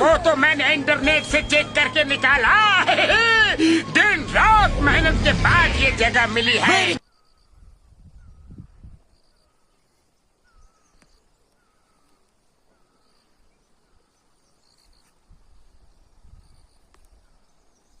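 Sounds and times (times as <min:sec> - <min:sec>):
low rumbles: 0:00.0 - 0:07.0
insects chirping in high pulses: 0:14.1 - 0:18.0.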